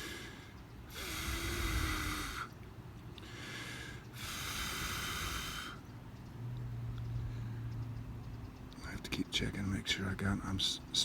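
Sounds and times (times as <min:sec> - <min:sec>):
person blowing on ember: 0:00.0 - 0:02.5, 0:04.2 - 0:05.8
soft breath: 0:00.0 - 0:02.6, 0:03.2 - 0:05.9, 0:07.2 - 0:07.8.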